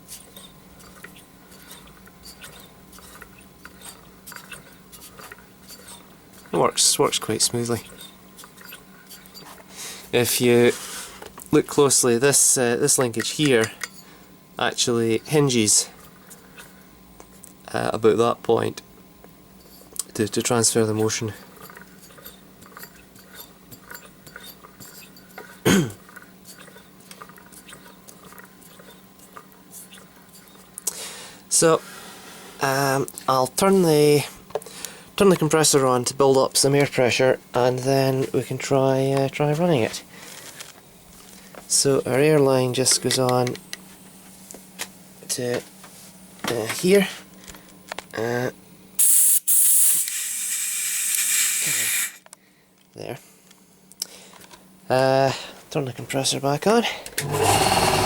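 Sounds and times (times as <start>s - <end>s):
compressed air hissing: 49.0s - 52.2s, 57.2s - 58.0s.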